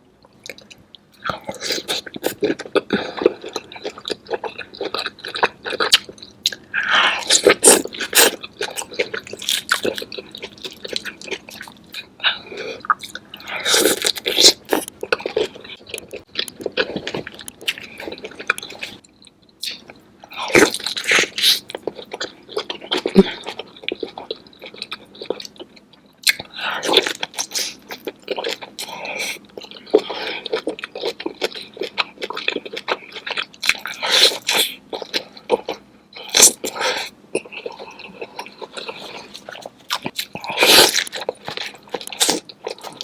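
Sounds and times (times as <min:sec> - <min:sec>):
person chewing with wet smacking: 0:00.3 - 0:06.6, 0:12.8 - 0:43.0
food crunching: 0:12.8 - 0:43.0.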